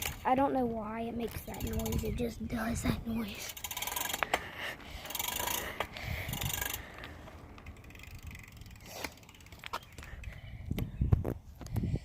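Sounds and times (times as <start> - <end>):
bicycle freewheel ratcheting: 0.0 - 0.4, 1.4 - 10.3.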